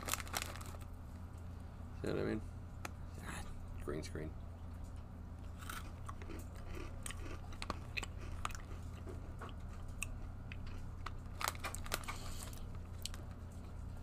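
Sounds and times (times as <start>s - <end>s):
person chewing crunchy cookies: 4.5s - 14.0s.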